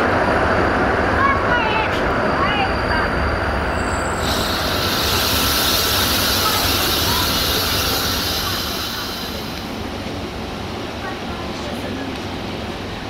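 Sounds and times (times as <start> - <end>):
air hissing past window: 4.2 - 9.8.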